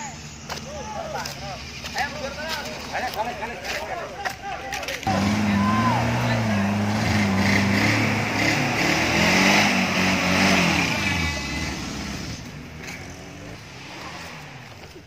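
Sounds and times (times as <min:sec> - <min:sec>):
off-road vehicle engine revving: 0:04.9 - 0:15.0.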